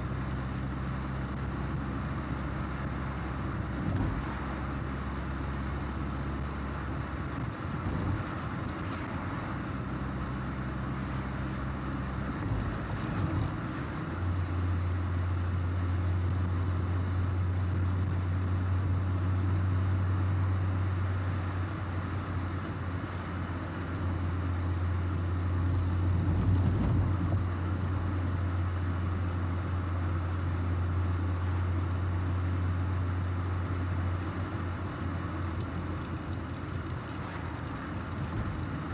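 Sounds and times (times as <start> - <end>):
car engine at road speed: 0.0 - 38.9
tyre and road noise: 33.7 - 38.9.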